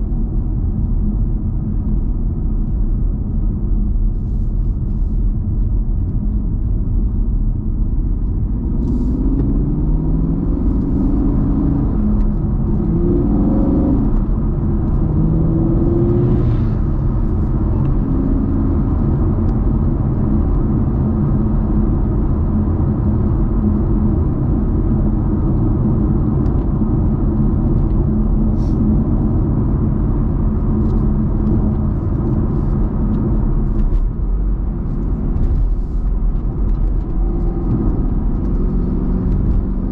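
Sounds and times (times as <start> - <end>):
car engine accelerating: 8.2 - 39.9.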